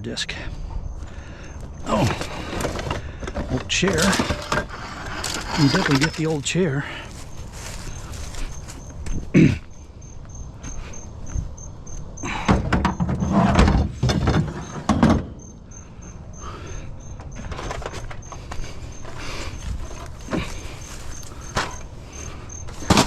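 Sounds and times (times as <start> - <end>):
junk knocking and scraping: 1.5 - 9.7, 12.2 - 15.6, 17.0 - 23.0.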